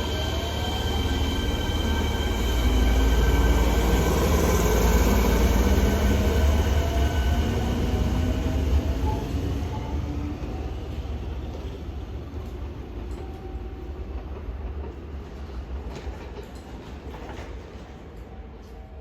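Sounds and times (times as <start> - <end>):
train whine: 0.0 - 16.3.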